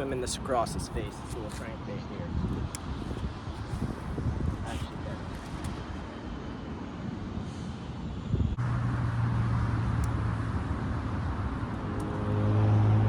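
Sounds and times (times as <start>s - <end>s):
engine humming: 2.6s - 13.0s.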